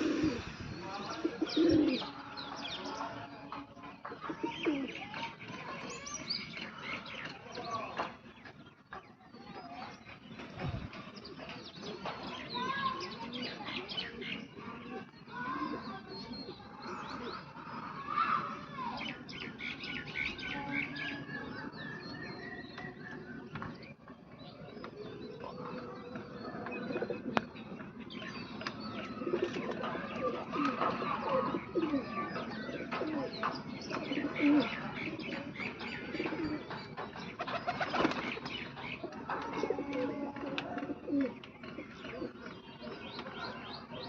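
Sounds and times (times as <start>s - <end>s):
pigeons cooing: 0.0s - 2.2s, 4.2s - 5.0s, 12.6s - 18.1s, 24.5s - 44.0s
birds chirping: 0.0s - 44.0s.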